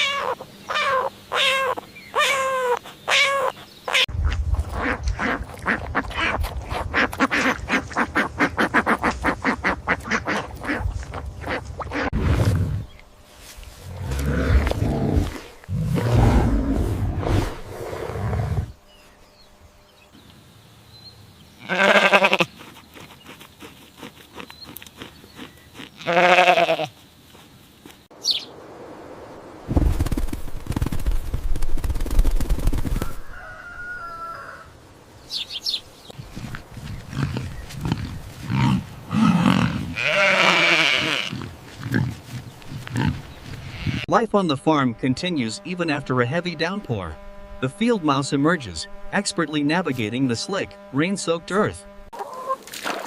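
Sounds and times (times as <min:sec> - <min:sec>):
goat bleating: 0:21.6 - 0:22.5, 0:26.0 - 0:27.0, 0:39.6 - 0:41.4, 0:43.6 - 0:44.1.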